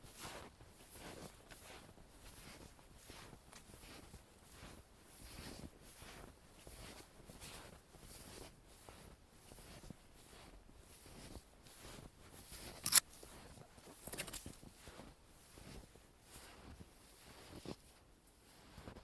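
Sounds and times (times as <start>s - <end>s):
footsteps crunching in snow: 0.0s - 19.0s
sharp click: 12.8s - 13.1s, 14.0s - 14.5s.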